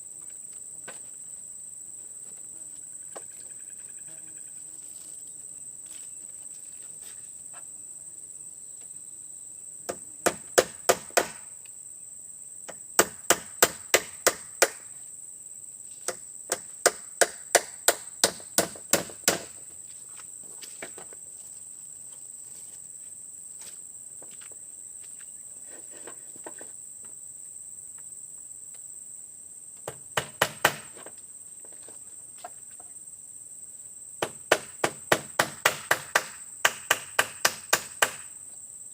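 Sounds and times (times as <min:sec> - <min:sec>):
insects droning: 0:00.0 - 0:38.9
chopping wood: 0:09.9 - 0:11.5, 0:13.0 - 0:14.8, 0:16.1 - 0:19.5, 0:29.8 - 0:31.0, 0:34.2 - 0:38.3.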